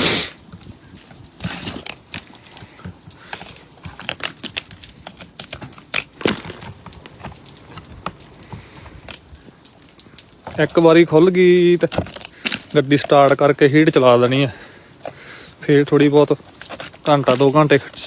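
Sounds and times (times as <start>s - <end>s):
ice being chipped and scraped: 0.0s - 9.2s, 10.4s - 18.0s
sharp knocks on ice: 3.4s - 7.8s.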